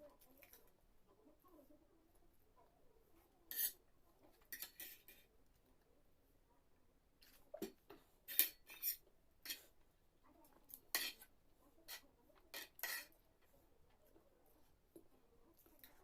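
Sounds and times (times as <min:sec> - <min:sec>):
cutlery clinking on a dish: 0:03.5 - 0:03.8, 0:04.4 - 0:05.3, 0:07.2 - 0:09.7, 0:10.7 - 0:13.2.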